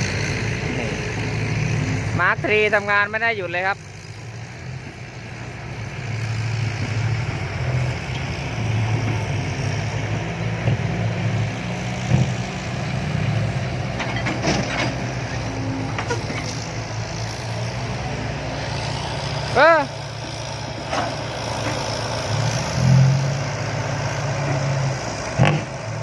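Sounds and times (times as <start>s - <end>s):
heavy diesel engine running: 0.0s - 26.0s
metallic knocks and clanks: 13.9s - 15.1s.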